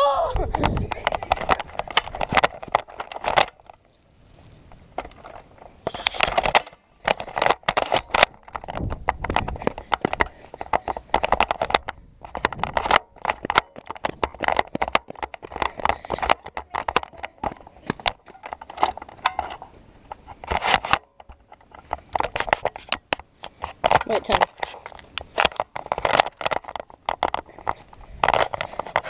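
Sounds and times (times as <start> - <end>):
clicks knocks and scraping: 0.3 - 29.0.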